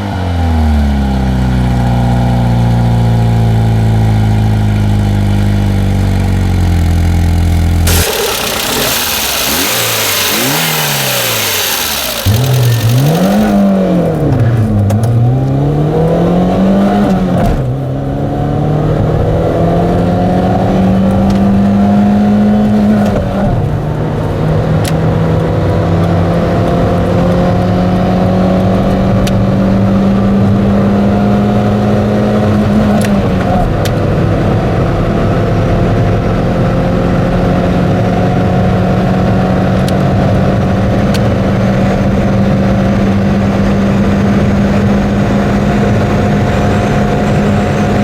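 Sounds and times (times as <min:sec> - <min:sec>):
car engine revving: 0:03.2 - 0:48.0.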